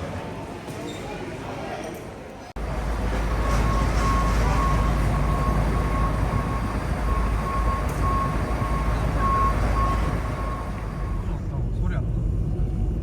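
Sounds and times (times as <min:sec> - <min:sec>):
low vehicle rumble: 0:02.6 - 0:13.0
repeated high beep: 0:03.4 - 0:11.2.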